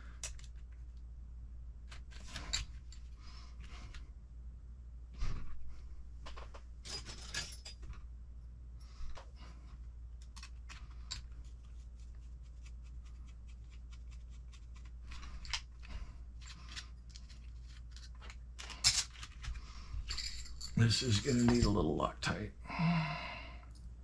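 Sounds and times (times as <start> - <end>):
small metal parts clicking: 10.2 - 11.4, 15.1 - 21.6.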